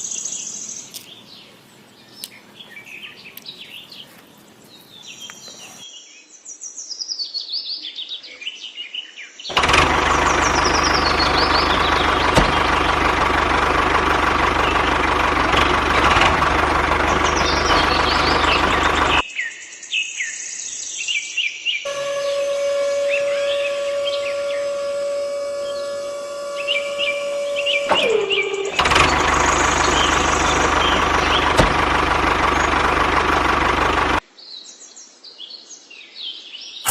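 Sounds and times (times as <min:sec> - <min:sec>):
birds chirping: 0:00.0 - 0:06.1, 0:09.5 - 0:19.4, 0:21.9 - 0:34.2
loud engine-like drone: 0:09.5 - 0:19.2, 0:21.9 - 0:34.2
steady hum: 0:21.9 - 0:34.2.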